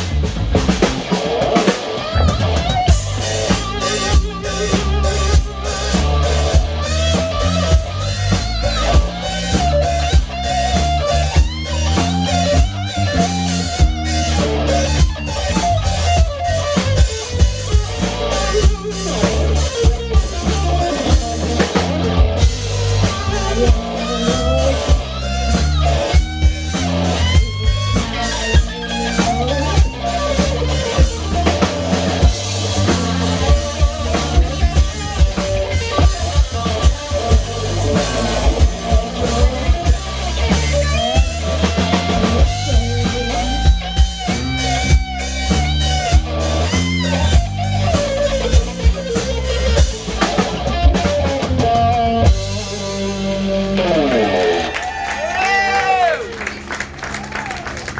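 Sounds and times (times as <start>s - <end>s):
rock band playing: 0.0s - 57.9s.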